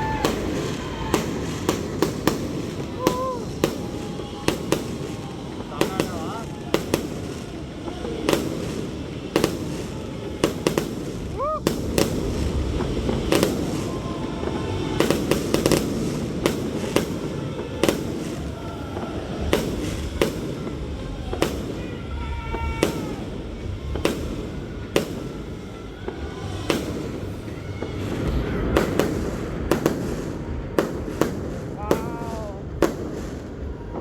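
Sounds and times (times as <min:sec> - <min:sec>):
fireworks bangs: 0:00.0 - 0:34.0.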